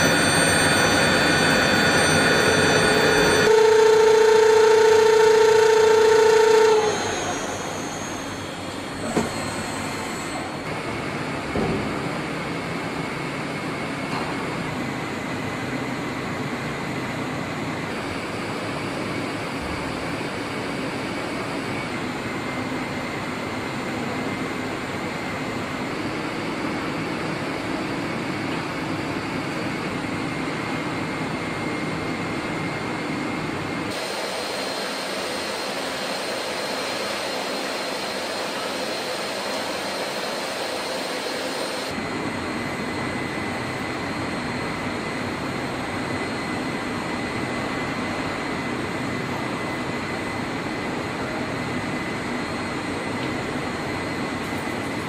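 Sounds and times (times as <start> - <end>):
machine hissing and whining: 0.0 - 55.0.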